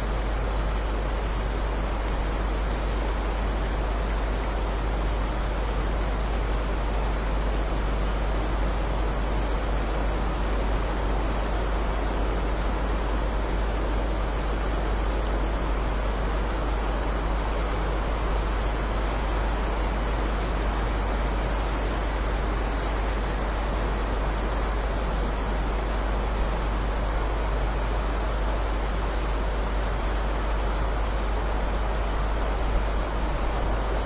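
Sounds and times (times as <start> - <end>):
heavy rain hissing: 15.7 - 34.0.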